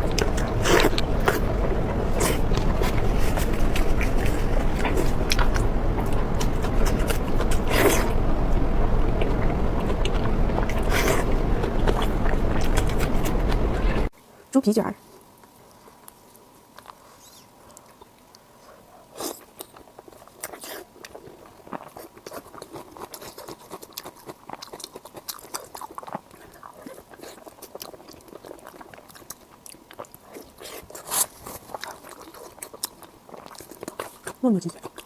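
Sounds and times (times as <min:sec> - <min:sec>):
crispy pork skin crunching: 0:19.1 - 0:35.0.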